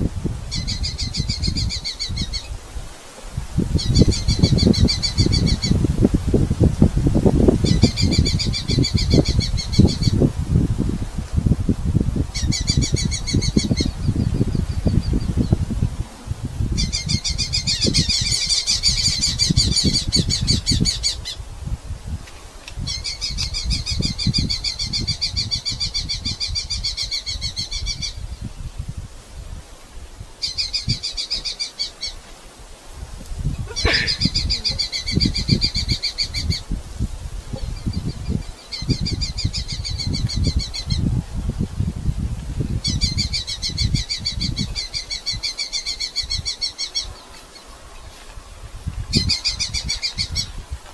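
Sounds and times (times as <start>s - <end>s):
low rumbling and rustling noise: 0.0s - 18.3s
falcons chattering calls: 33.6s - 36.5s.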